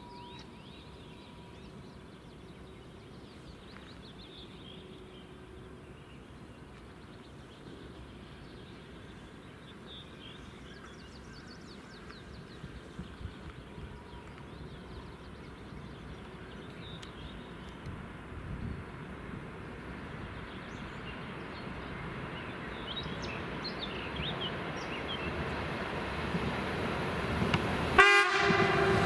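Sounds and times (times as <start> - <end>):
songbirds chirping: 0.0 - 28.0.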